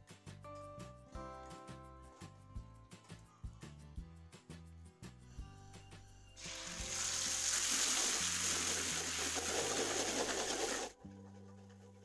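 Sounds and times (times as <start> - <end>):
spice paste sizzling in oil: 6.4 - 10.9.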